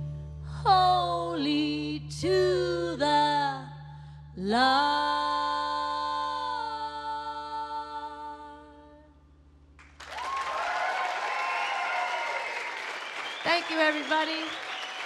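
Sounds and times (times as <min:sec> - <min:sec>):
audience applause: 0:09.8 - 0:15.0.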